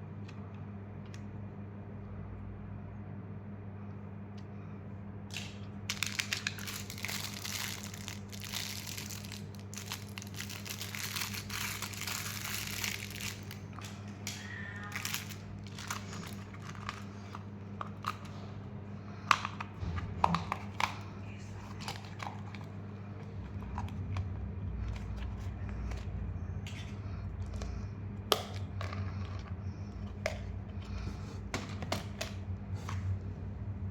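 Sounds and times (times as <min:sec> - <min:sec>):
low hum: 0:00.0 - 0:33.9
packaging crinkling and tearing: 0:05.3 - 0:18.3.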